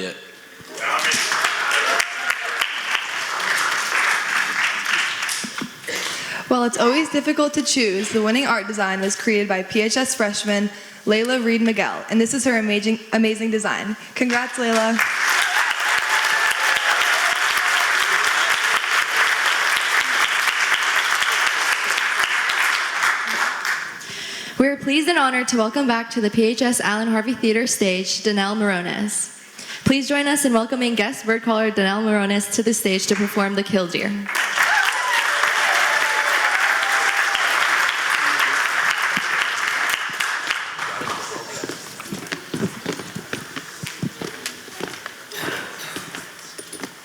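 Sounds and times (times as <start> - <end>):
audience applauding: 0.6 - 6.3, 14.3 - 24.0, 34.3 - 45.1.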